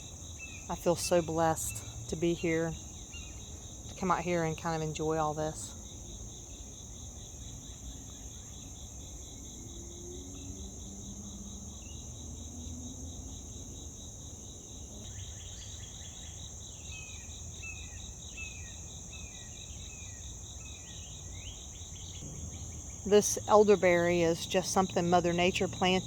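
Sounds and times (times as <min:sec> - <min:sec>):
crickets chorus: 0:00.0 - 0:26.0
low background rumble: 0:22.2 - 0:26.0.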